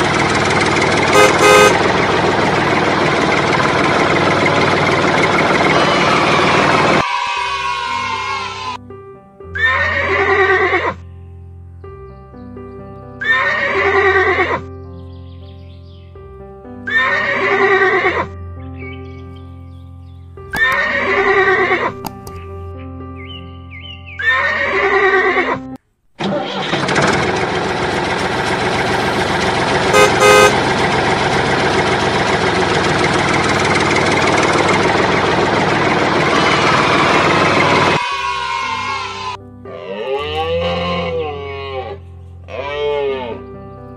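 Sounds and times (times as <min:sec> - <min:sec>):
tractor engine running: 0:00.0 - 0:07.0, 0:26.2 - 0:38.0
loud horn-like beep: 0:01.1 - 0:02.0, 0:29.9 - 0:30.6
soft background music: 0:07.4 - 0:25.8, 0:38.3 - 0:43.9
horse neighing: 0:09.6 - 0:11.0, 0:13.2 - 0:14.6, 0:16.9 - 0:18.3, 0:20.5 - 0:22.0, 0:24.2 - 0:26.7, 0:38.0 - 0:43.4.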